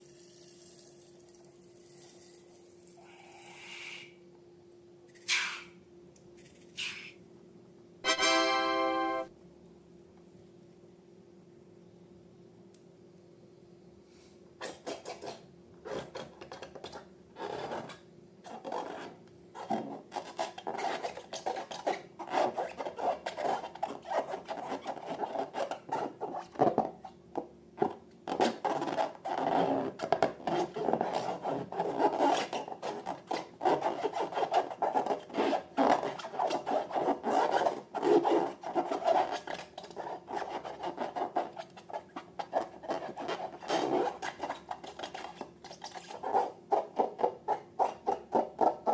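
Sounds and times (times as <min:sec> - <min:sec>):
rubbing and rasping on balloons: 0:14.6 - 0:27.2, 0:27.8 - 0:48.9.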